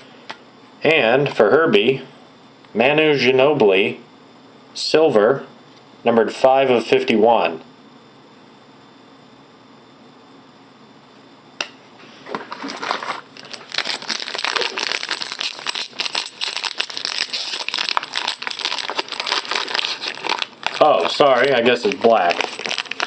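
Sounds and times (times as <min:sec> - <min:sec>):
card packaging crinkling: 0:12.3 - 0:23.0.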